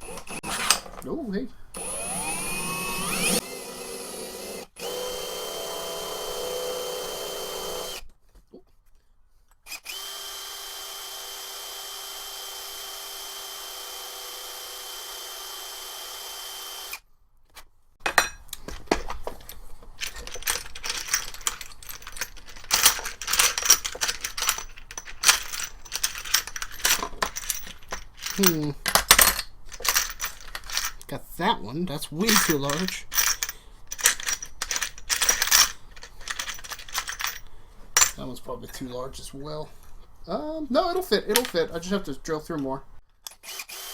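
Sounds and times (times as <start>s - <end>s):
electric drill running: 0.0s - 0.6s, 1.8s - 8.0s, 9.7s - 17.0s, 43.4s - 43.9s
small metal parts clattering: 18.0s - 31.1s, 32.2s - 38.2s, 41.3s - 41.9s.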